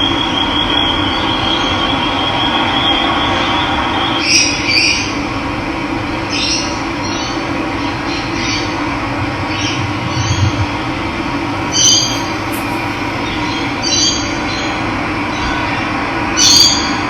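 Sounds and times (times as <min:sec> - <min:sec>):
birds chirping: 0:11.6 - 0:14.1.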